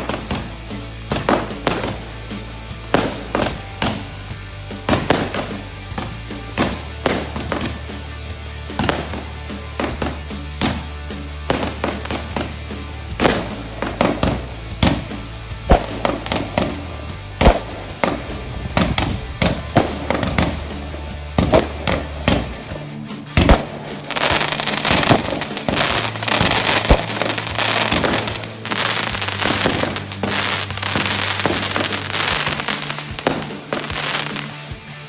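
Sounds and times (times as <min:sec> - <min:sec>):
fireworks bangs: 0:00.0 - 0:02.1, 0:04.9 - 0:07.8, 0:11.5 - 0:22.8, 0:23.4 - 0:34.6
music with bass notes: 0:00.0 - 0:35.0.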